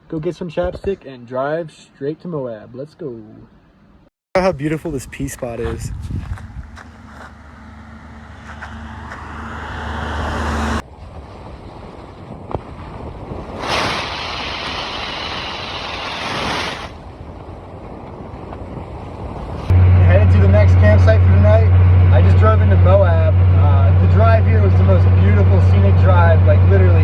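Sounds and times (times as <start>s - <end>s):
road noise: 3.6s - 27.0s
rush of wind noise: 4.4s - 7.0s, 8.4s - 19.9s
truck engine hum: 4.9s - 10.8s, 19.4s - 27.0s.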